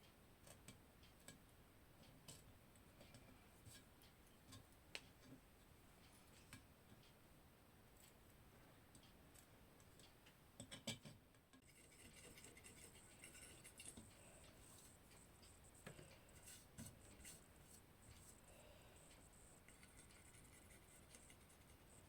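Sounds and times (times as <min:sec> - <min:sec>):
small objects clicking and tapping: 0:08.9 - 0:17.4.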